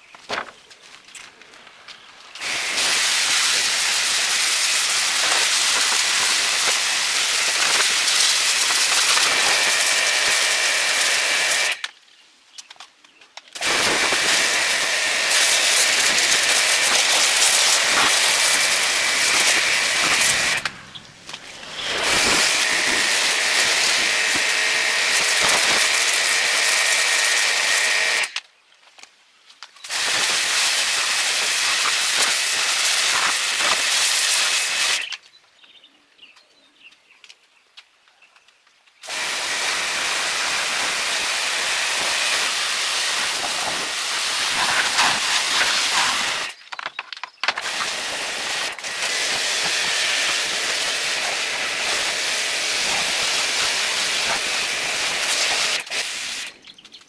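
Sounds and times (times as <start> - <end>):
high-pressure spraying hiss: 2.4 - 11.8, 13.6 - 28.4, 29.8 - 35.1, 39.0 - 46.6, 47.6 - 56.6.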